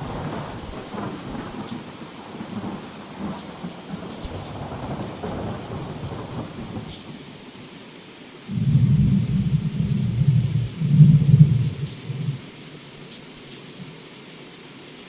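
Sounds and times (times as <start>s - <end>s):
rolling thunder: 0.0s - 7.3s, 8.5s - 12.8s
heavy rain pouring: 0.0s - 15.0s.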